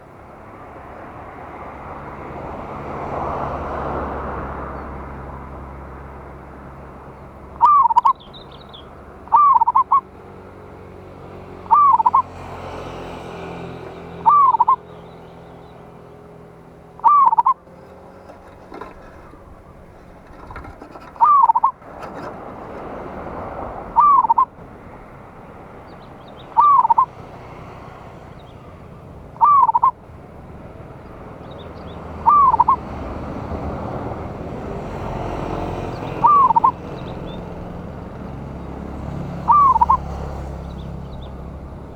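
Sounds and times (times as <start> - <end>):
dove cooing: 7.6 - 8.2, 9.3 - 10.1, 11.6 - 12.4, 13.6 - 14.9, 17.0 - 22.8, 23.8 - 24.6, 26.5 - 30.0, 30.9 - 38.4, 39.2 - 41.6.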